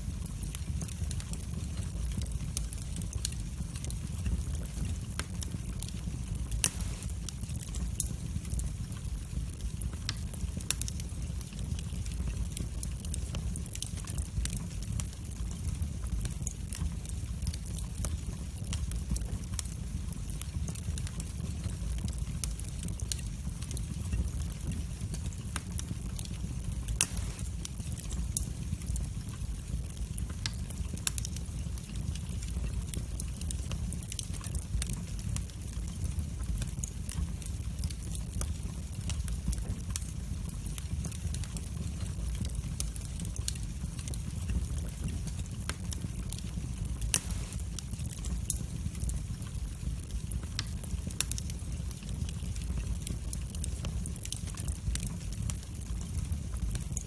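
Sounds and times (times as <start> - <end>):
fire crackling: 0.0 - 57.0
fire flames rumbling: 0.0 - 57.0
loud wood pops: 27.0 - 27.4, 47.2 - 47.6.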